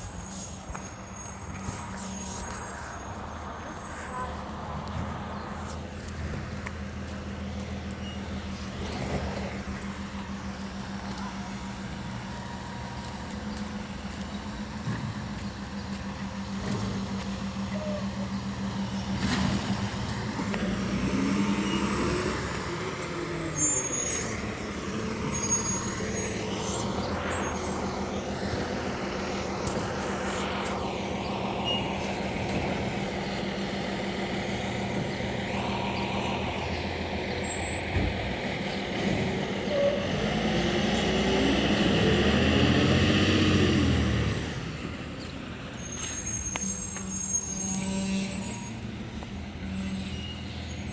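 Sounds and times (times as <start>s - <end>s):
diesel engine running: 0.0s - 50.9s
high squeaks from packer: 8.0s - 9.2s, 23.5s - 24.6s, 25.2s - 28.1s, 31.6s - 32.1s, 45.7s - 50.9s.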